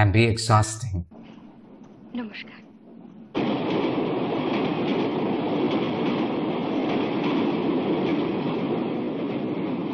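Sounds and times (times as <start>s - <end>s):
train wheels rumbling on rails: 1.2s - 9.9s.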